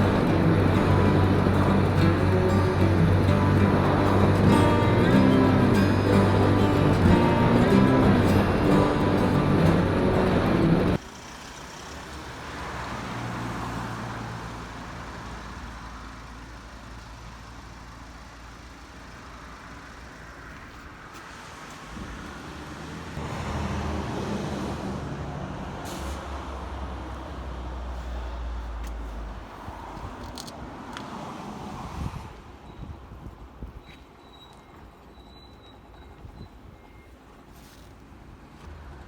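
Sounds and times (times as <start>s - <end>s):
background music: 0.0s - 11.0s
vehicle engine rumbling: 0.0s - 30.6s.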